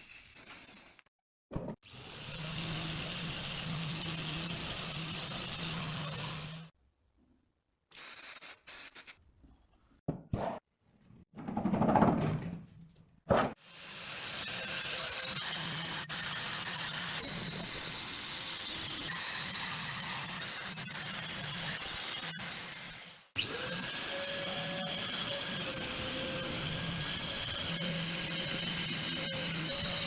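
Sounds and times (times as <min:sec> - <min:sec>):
small power tool whining: 0:01.9 - 0:06.7, 0:13.7 - 0:30.0.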